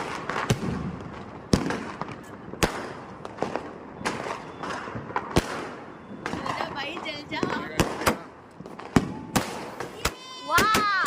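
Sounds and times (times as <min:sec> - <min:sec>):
firecrackers banging: 0:00.0 - 0:11.0.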